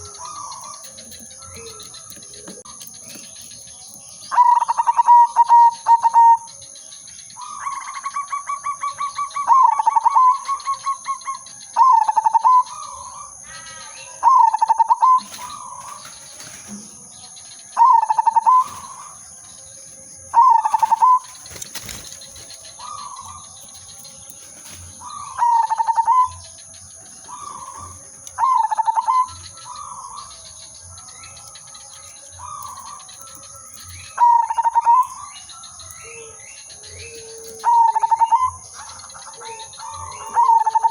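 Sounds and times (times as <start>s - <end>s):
dove cooing: 0.0s - 6.6s, 7.4s - 13.3s, 17.7s - 19.2s, 20.3s - 30.5s, 32.4s - 40.9s.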